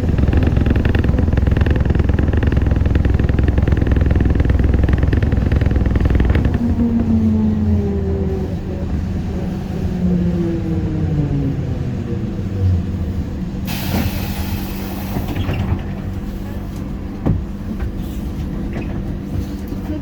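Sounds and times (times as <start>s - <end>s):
steady hum: 0.0s - 7.7s
trolleybus motor whine falling: 0.0s - 19.3s.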